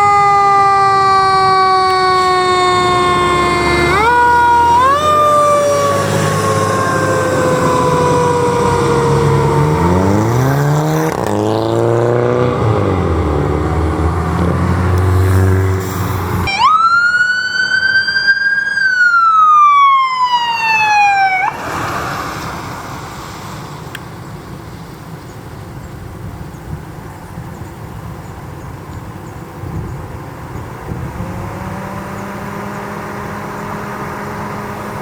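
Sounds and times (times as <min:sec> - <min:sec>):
siren wailing: 0:00.0 - 0:11.2, 0:16.4 - 0:23.8
road noise: 0:00.0 - 0:35.0
vehicle engine noise: 0:00.0 - 0:35.0.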